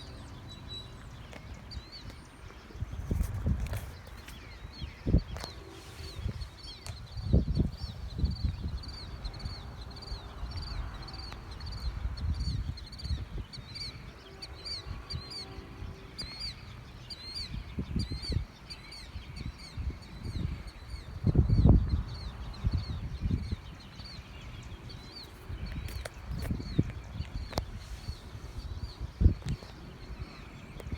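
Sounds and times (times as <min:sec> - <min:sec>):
bird chirping: 0:00.0 - 0:30.9
wind noise on microphone: 0:00.0 - 0:30.9.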